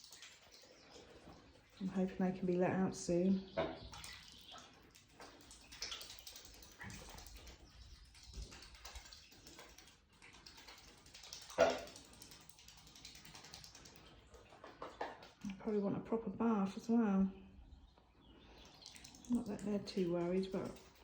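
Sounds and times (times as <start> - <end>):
geese pecking and rustling: 0.0 - 1.9, 3.8 - 15.5.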